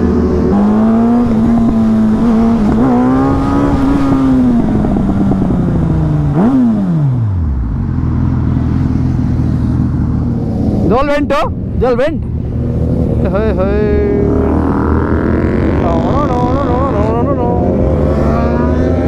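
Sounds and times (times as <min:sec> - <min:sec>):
vehicle engine revving hard: 0:00.0 - 0:07.3, 0:17.5 - 0:19.0.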